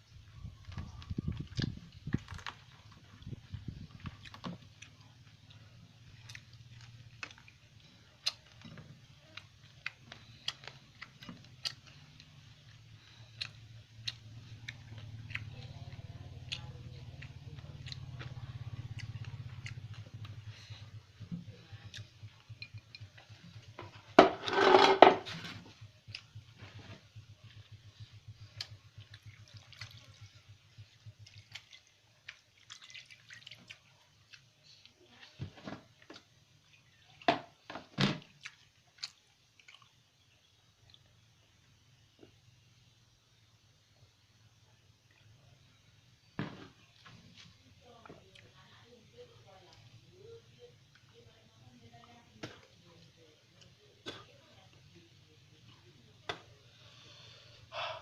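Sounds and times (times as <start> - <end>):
person chewing food: 0.6 - 24.8, 25.4 - 42.5.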